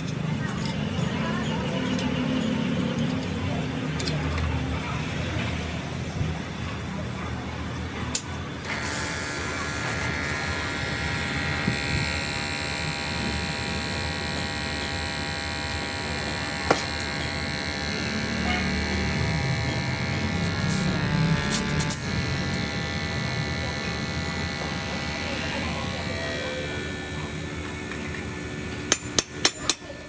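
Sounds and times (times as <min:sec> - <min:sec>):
electric motor whining: 0:08.6 - 0:30.0.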